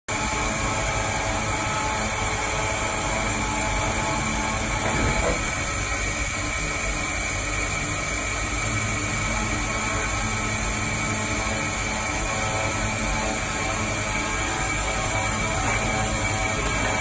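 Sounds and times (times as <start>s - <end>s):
cnc machine running: 0.1s - 17.0s.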